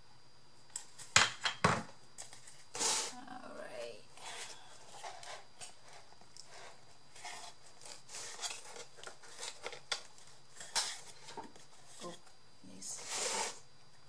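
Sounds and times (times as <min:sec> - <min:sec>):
paper and card rustling: 0:04.2 - 0:12.2.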